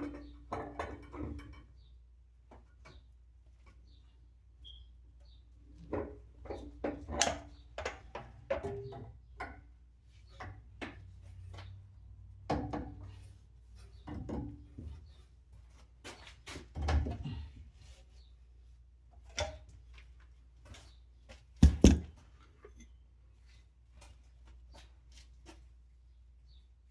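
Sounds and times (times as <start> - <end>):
sharp knock: 21.6 - 22.1
pipe fittings and tools clicking: 21.6 - 22.9.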